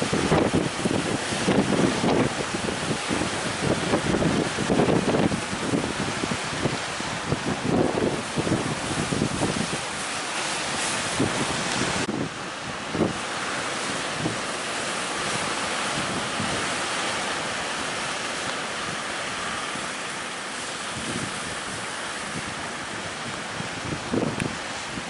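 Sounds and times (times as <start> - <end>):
ocean waves breaking: 0.0 - 25.0
wind buffeting microphone: 0.0 - 25.0.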